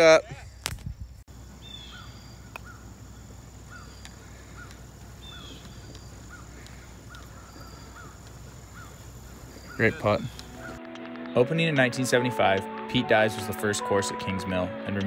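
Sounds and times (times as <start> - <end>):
birds chirping and calling: 1.3 - 12.2.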